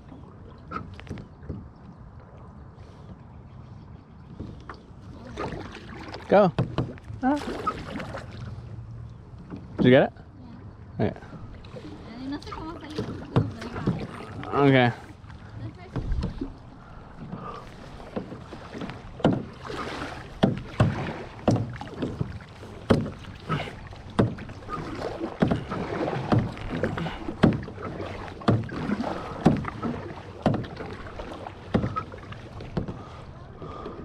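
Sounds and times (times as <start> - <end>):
paddle splashing into water: 4.5 - 8.6, 11.4 - 15.2, 15.9 - 34.0
sharp paddle knocks: 18.1 - 19.6, 20.4 - 23.2, 24.1 - 24.5, 25.3 - 27.7, 28.4 - 30.9, 31.7 - 32.1.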